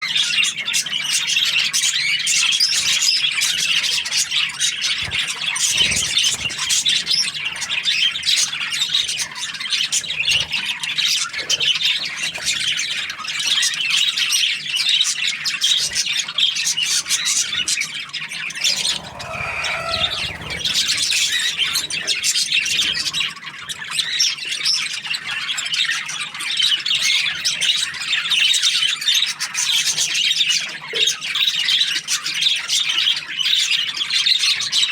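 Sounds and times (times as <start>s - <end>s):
budgerigar chirping and chattering: 18.6s - 22.0s.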